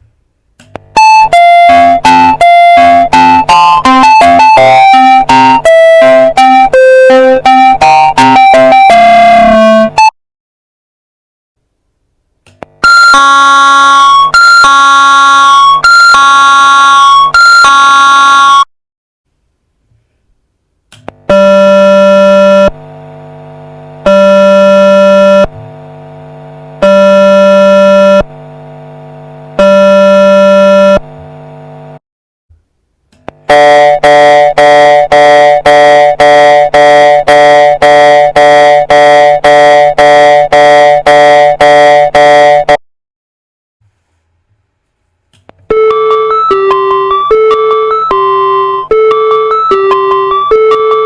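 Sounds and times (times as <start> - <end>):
alternating alarm buzzer: 0.9 - 10.1, 12.8 - 18.7, 21.2 - 31.1, 33.5 - 42.8
crossing bell alarm tone: 1.0 - 9.9, 12.8 - 18.7, 45.7 - 51.0.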